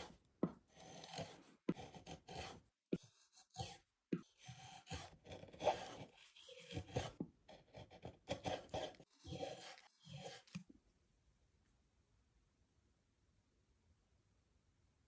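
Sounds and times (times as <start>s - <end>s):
hand tool rasping wood: 0.0s - 10.6s.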